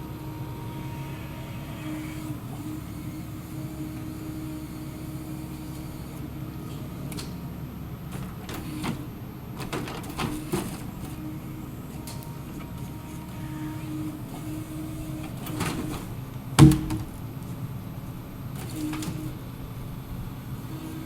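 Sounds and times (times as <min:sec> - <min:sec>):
excavator engine drone: 0:00.0 - 0:21.0
hydraulic whines: 0:00.0 - 0:21.0
knocks: 0:16.6 - 0:17.2
loud thump: 0:16.6 - 0:17.2.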